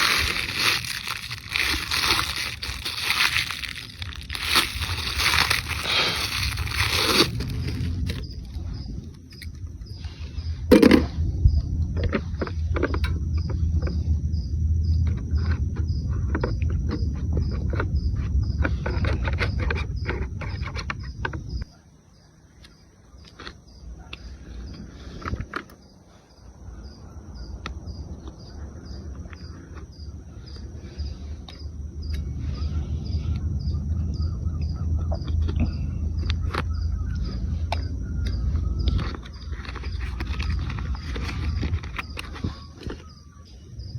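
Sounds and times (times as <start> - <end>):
low rumble: 0.0 - 21.7, 30.1 - 42.8
crickets chirping: 0.0 - 43.9.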